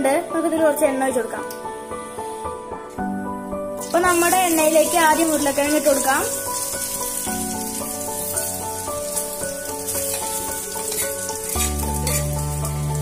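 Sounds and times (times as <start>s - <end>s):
background music with held notes: 0.0s - 13.0s
potatoes sizzling in hot oil: 3.8s - 13.0s.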